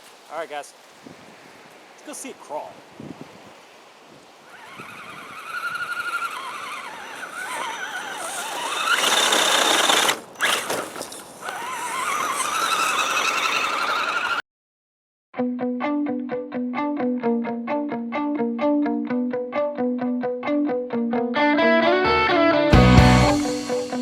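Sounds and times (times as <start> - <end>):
electric motor and gear whine: 4.5 - 14.4.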